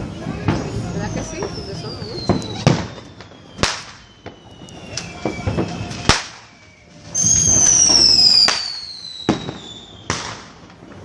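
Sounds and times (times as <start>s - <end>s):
firework bangs: 0.0s - 11.0s
whistling firework: 0.0s - 11.0s.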